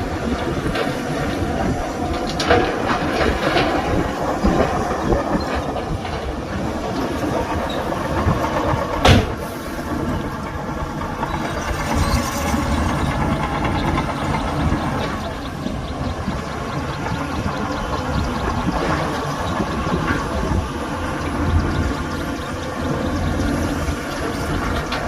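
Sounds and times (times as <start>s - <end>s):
heavy diesel machinery clanking: 0.0s - 25.0s
loud metallic bang: 9.0s - 9.6s.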